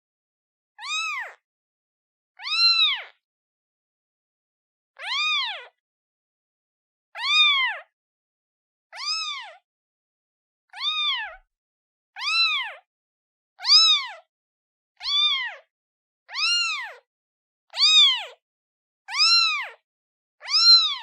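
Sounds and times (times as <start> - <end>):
kitten meowing: 0.8 - 1.4, 2.4 - 3.2, 5.0 - 5.8, 7.2 - 7.9, 8.9 - 9.6, 10.7 - 11.4, 12.2 - 12.9, 13.6 - 14.3, 15.0 - 15.7, 16.3 - 17.0, 17.8 - 18.4, 19.1 - 19.8, 20.4 - 21.0.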